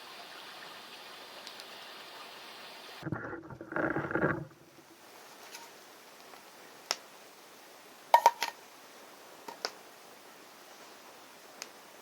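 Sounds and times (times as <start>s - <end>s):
faint steady hiss: 0.0s - 3.2s, 3.8s - 12.0s.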